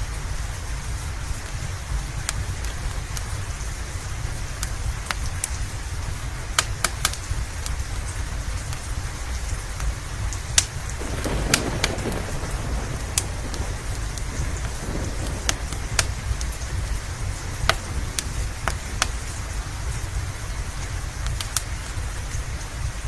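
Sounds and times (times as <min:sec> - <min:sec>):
steady rain: 0:00.0 - 0:23.0
wood fire crackling and popping: 0:01.2 - 0:23.0
low rumble: 0:11.0 - 0:20.8.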